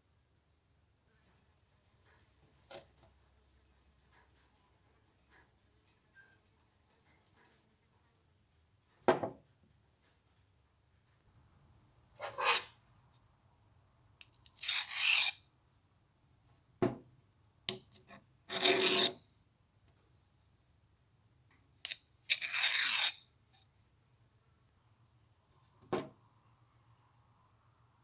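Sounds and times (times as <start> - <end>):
file rasping on metal: 12.2 - 12.8, 14.6 - 15.4, 18.5 - 19.2, 22.3 - 23.2.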